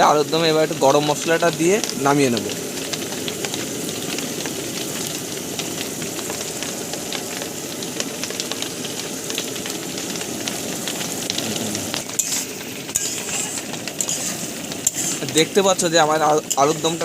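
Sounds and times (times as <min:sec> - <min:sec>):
potato curry sizzling in a pan: 0:00.0 - 0:17.0
scraping in the pan: 0:11.8 - 0:15.4.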